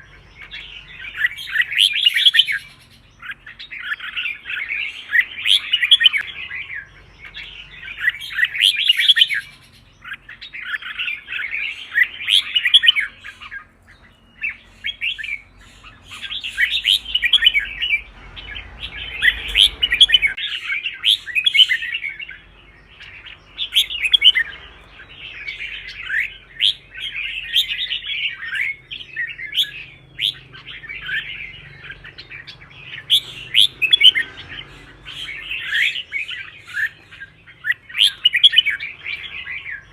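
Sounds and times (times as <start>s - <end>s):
bird warbling song: 0.0s - 39.9s.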